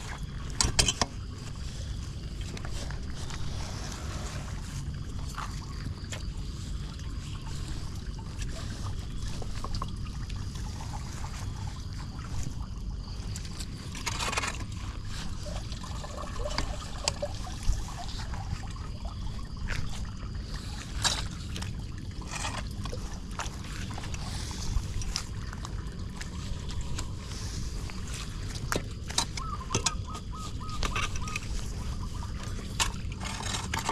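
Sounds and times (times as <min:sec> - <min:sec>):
floodwater sloshing and trickling: 0:00.0 - 0:33.9
steady low rumble: 0:00.0 - 0:33.9
water splashes: 0:00.0 - 0:33.9.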